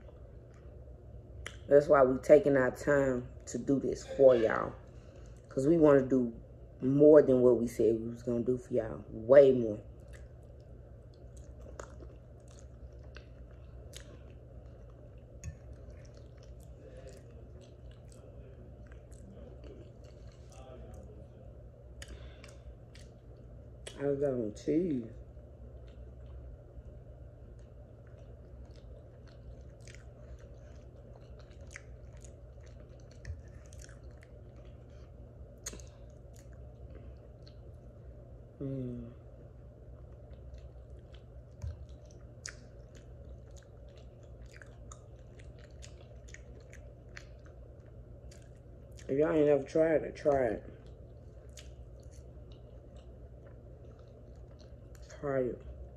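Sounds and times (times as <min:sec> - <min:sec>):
steady low hum: 0:00.0 - 0:55.9
chewing food: 0:09.7 - 0:24.0, 0:25.6 - 0:55.9
wet mouth clicks and smacks: 0:35.6 - 0:36.5, 0:40.3 - 0:47.6, 0:50.8 - 0:55.1.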